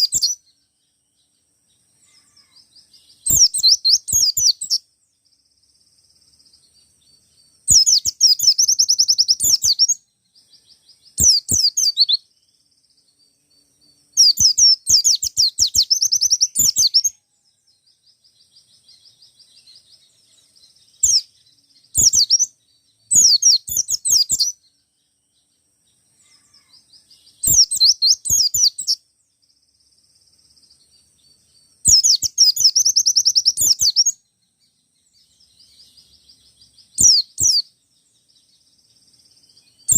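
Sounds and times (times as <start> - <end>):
bird chirping rapidly: 0.0 - 0.4, 3.2 - 4.8, 7.6 - 10.0, 10.7 - 12.3, 14.2 - 17.1, 20.8 - 24.6, 27.4 - 29.0, 31.9 - 34.2, 35.6 - 37.8
soft bird twittering: 0.0 - 39.9.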